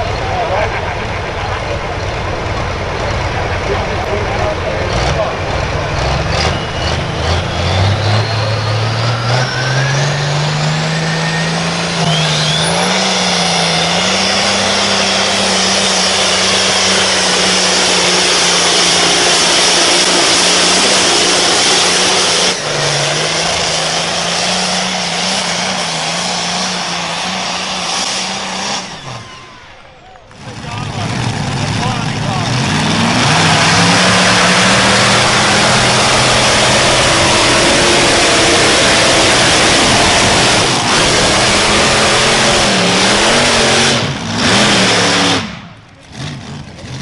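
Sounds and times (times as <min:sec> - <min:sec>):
engine revving at full load: 0:00.0 - 0:47.0.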